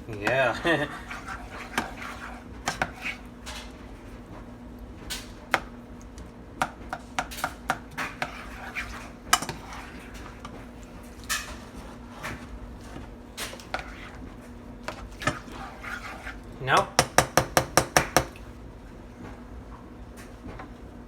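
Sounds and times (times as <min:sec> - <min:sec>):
metal utensil scraping a pot: 0:08.1 - 0:10.2, 0:15.2 - 0:16.4.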